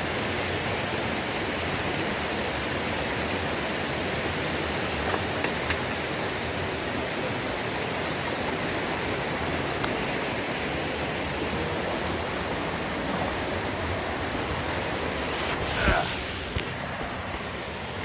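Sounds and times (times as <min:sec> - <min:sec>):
heavy rain falling: 0:04.4 - 0:18.0.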